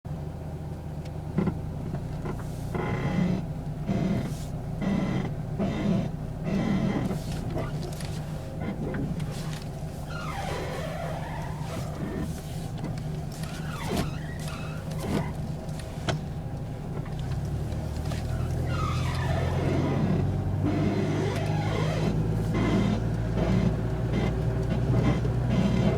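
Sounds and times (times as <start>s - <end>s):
car engine idling: 0.1s - 25.9s
sharp clicks from car front end: 0.6s - 25.9s
squealing gliding sounds: 9.3s - 12.7s, 18.3s - 20.0s.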